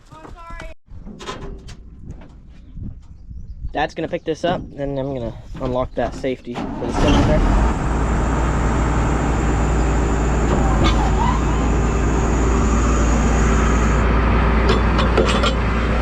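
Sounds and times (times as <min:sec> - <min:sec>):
combine engine running: 0:06.9 - 0:16.0
high whine: 0:07.6 - 0:16.0.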